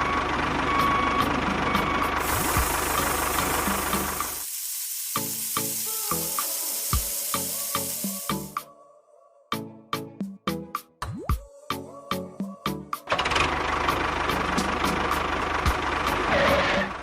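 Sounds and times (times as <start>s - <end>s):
small engine running: 2.2s - 4.4s
steady loud hiss: 2.2s - 8.6s
music with regular beat: 5.9s - 8.7s.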